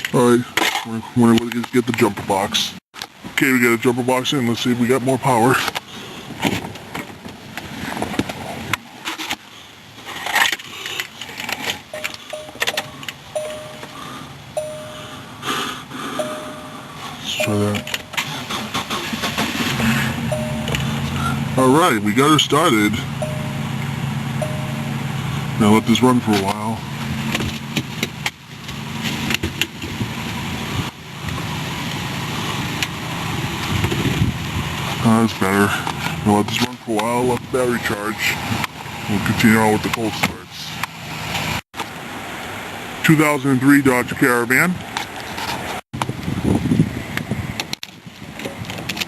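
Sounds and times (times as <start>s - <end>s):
car engine idling: 11.0s - 41.6s
car warning chime: 11.9s - 15.4s, 16.0s - 18.5s, 20.2s - 26.6s.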